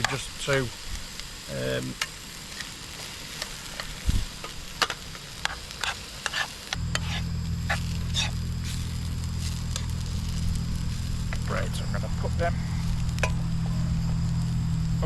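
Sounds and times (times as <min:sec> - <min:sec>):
burgers sizzling in a frying pan: 0:00.0 - 0:15.0
steady low hum: 0:00.0 - 0:15.0.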